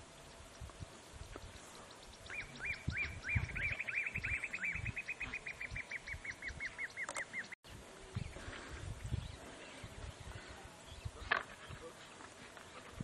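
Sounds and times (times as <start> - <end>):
bird calling repeated notes: 2.1 - 7.6.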